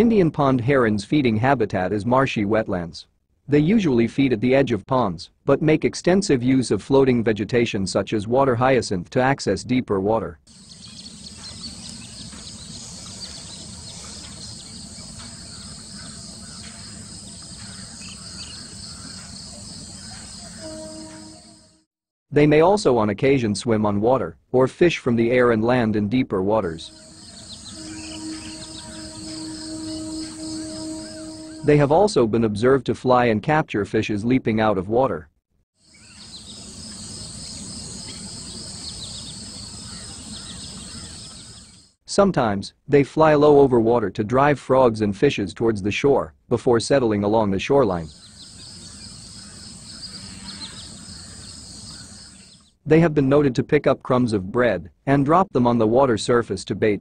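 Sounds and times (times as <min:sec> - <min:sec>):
faint bird chirps: 0:10.5 - 0:21.8, 0:26.8 - 0:31.9, 0:35.9 - 0:41.9, 0:48.0 - 0:52.8
high-pitched insect chorus: 0:10.5 - 0:21.8, 0:26.8 - 0:31.9, 0:35.9 - 0:41.9, 0:48.1 - 0:52.6
low outdoor background hum: 0:10.5 - 0:21.8, 0:25.6 - 0:32.0, 0:35.9 - 0:41.9, 0:48.0 - 0:52.7.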